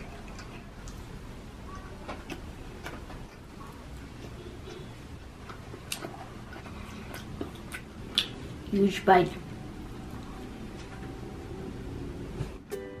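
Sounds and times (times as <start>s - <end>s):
person chewing food: 0.0s - 8.7s.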